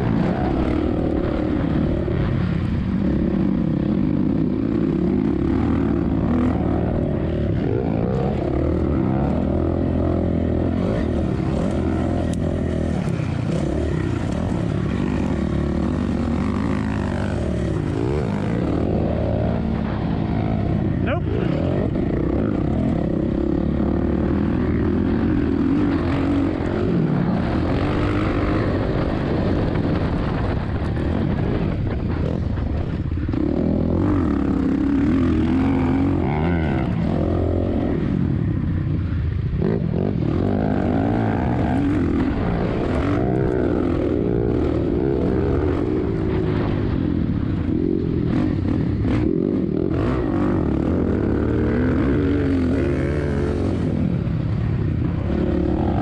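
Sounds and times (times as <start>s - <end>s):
motocross engine revving: 0.0s - 30.6s, 32.2s - 38.6s, 39.6s - 56.0s
wind rumbling on microphone: 0.0s - 56.0s.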